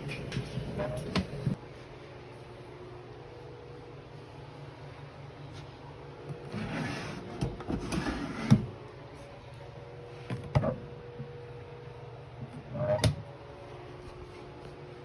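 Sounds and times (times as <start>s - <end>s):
wooden drawer scraping in runners: 6.5s - 8.7s.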